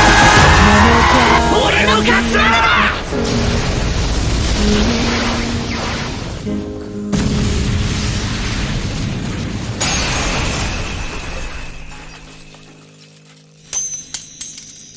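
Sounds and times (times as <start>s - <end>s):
explosion-like blast: 0.0s - 2.4s, 7.1s - 11.9s
sharp metallic clink: 13.7s - 14.9s.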